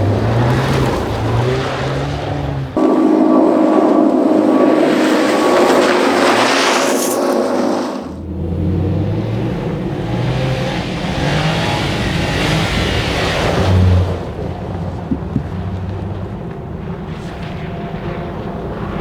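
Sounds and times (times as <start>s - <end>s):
rally car engine at high revs: 0.0s - 19.0s
hiss: 2.8s - 8.2s.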